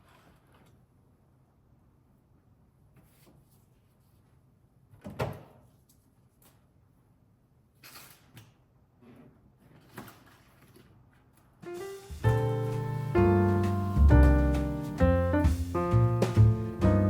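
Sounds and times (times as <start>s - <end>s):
brushing sounds: 11.7s - 17.0s.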